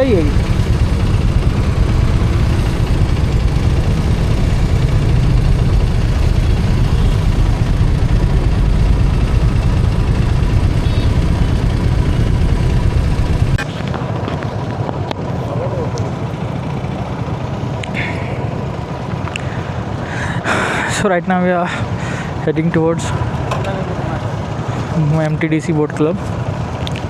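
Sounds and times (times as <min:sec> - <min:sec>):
wind buffeting: 0:00.0 - 0:15.1
motorcycle engine rumble: 0:00.0 - 0:27.0.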